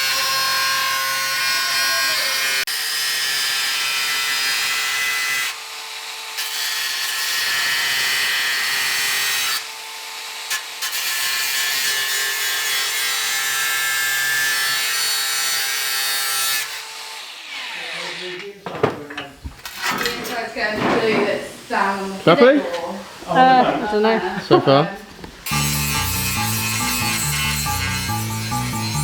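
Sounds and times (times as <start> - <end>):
power tool cutting sheet metal: 0.0 - 18.5, 25.4 - 29.0.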